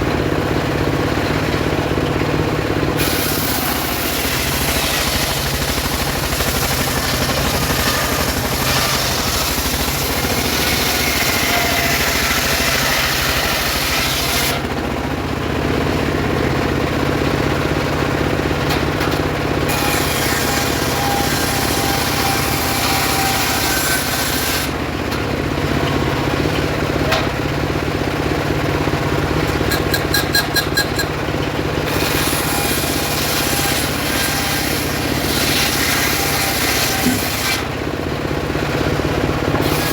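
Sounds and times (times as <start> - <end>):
circular saw motor hum: 3.0 - 14.7, 19.6 - 37.8
saw blade cutting wood: 3.0 - 14.7, 19.1 - 24.8, 29.4 - 37.8, 39.6 - 39.9.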